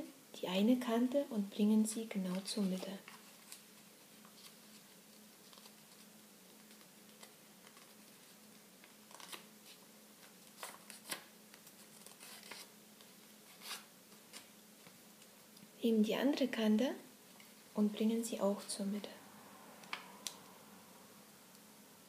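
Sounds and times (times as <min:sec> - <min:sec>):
low steady hum: 0:00.0 - 0:22.0
soft paper crackles: 0:02.0 - 0:15.3
paper rustling and crinkling: 0:02.2 - 0:15.0.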